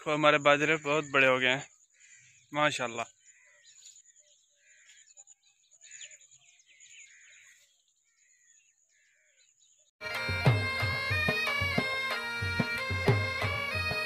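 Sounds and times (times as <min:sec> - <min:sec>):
faint bird calls: 0:00.6 - 0:09.6
reedy melody with drum beat: 0:10.0 - 0:14.0.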